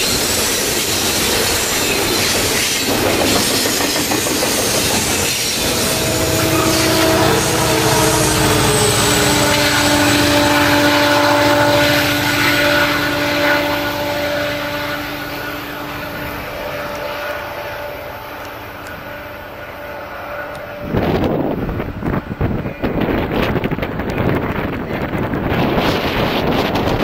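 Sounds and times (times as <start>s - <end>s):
diesel locomotive engine drone: 0.0s - 27.0s
train rumble: 0.0s - 27.0s
whining tones: 0.1s - 21.6s
wind buffeting microphone: 20.6s - 27.0s.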